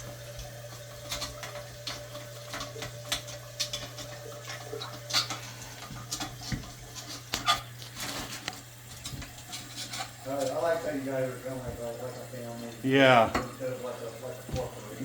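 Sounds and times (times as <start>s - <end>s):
metal pick scraping porcelain: 9.5s - 10.2s.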